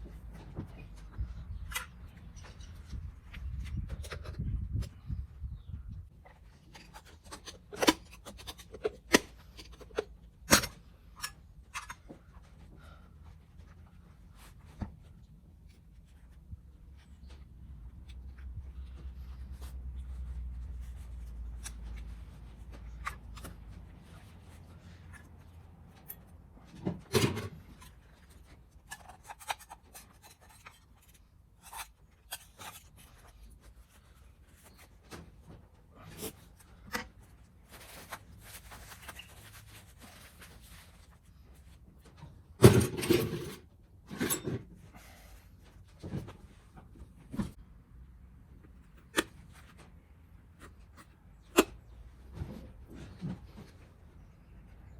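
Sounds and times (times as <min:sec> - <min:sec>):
small parts and tools handled: 0:18.0 - 0:42.2.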